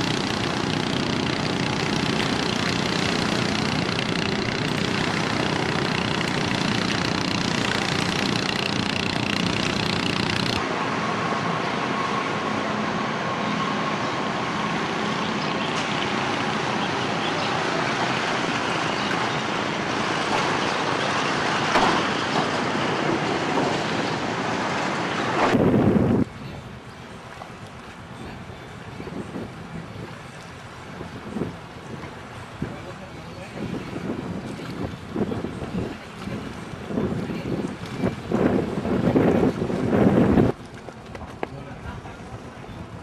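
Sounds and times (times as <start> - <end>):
boat engine running: 0.0 - 10.7
sea noise: 0.0 - 41.0
heavy wind: 20.8 - 43.0.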